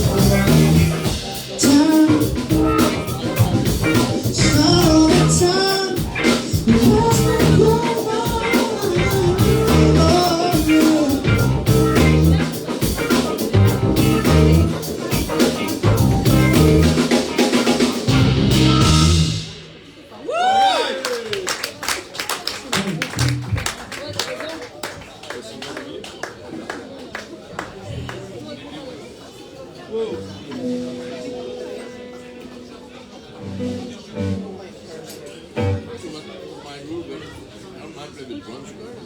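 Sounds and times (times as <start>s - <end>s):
lead vocal singing: 0.0s - 11.8s
bass guitar: 0.0s - 19.7s, 23.1s - 23.6s, 33.4s - 34.6s, 35.6s - 36.0s
electric guitar: 0.0s - 19.7s
drum kit beat: 0.0s - 20.1s, 33.4s - 34.6s.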